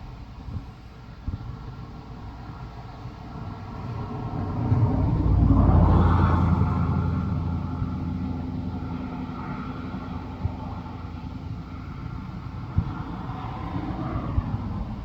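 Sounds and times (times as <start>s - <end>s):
vehicle passing close by: 3.4s - 15.0s.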